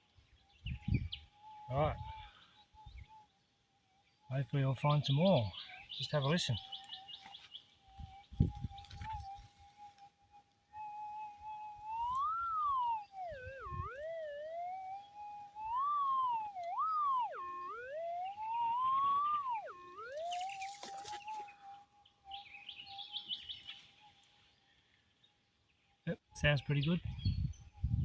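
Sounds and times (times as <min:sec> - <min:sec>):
metal detector tone swooping: 0:08.0 - 0:10.1, 0:10.8 - 0:23.8
metal detector threshold hum: 0:11.6 - 0:21.6.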